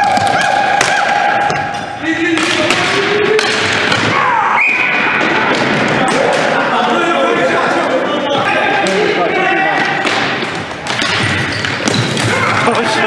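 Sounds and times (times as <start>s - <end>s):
ball and sticks knocking: 0.0s - 4.1s
people shouting: 0.0s - 10.3s, 11.4s - 13.0s.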